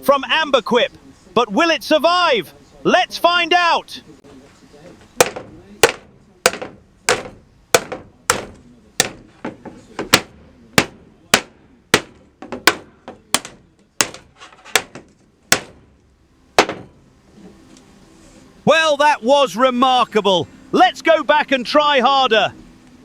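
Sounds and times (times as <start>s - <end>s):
hammer striking plastic: 5.2s - 16.0s, 16.6s - 17.0s.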